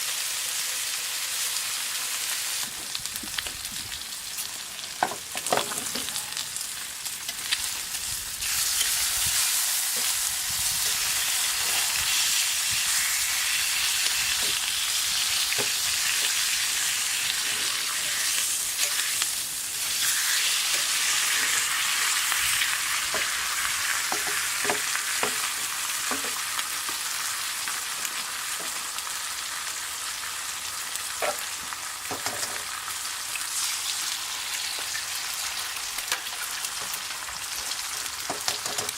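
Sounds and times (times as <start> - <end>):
bacon and eggs sizzling in a pan: 0.0 - 38.9
campfire pops and crackles: 2.6 - 9.0.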